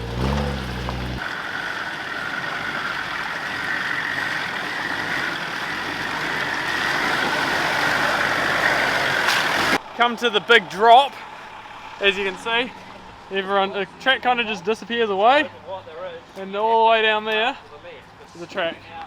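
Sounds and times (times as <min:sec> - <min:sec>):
off-road engine at low revs: 0:00.0 - 0:13.3.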